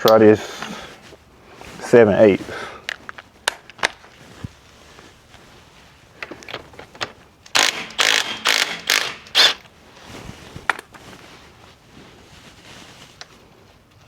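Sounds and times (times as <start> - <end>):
impact wrench bursts: 7.5 - 9.6.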